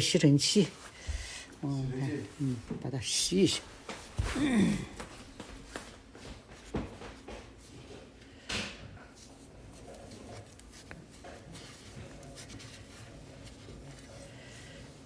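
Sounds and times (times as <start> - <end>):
faint knocks and clatter: 3.6 - 14.8.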